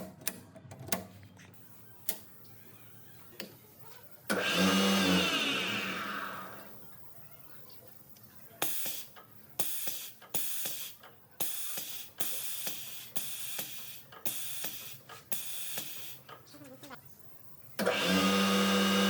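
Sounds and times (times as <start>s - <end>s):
short hissing air bursts: 8.6s - 16.3s.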